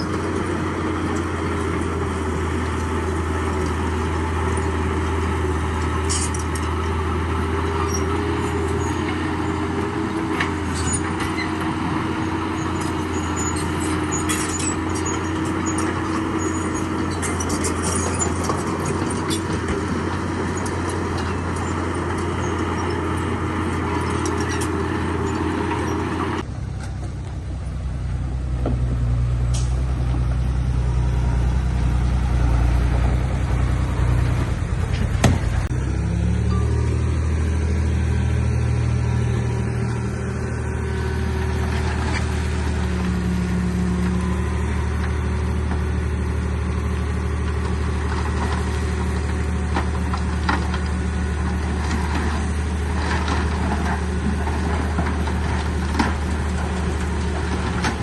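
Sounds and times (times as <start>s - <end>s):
deeper engine: 0.0s - 58.0s
diesel engine running: 0.0s - 58.0s
sharp knocks and clanks: 34.9s - 35.7s.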